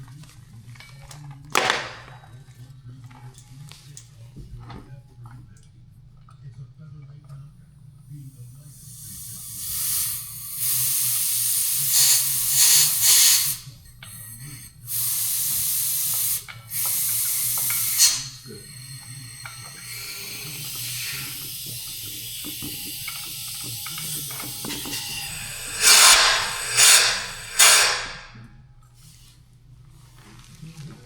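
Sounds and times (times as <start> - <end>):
spray hissing: 8.7 - 28.3.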